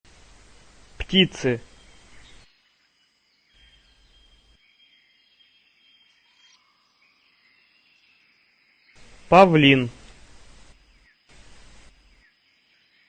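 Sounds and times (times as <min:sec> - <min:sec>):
faint hiss: 0:00.1 - 0:02.6, 0:08.9 - 0:13.0.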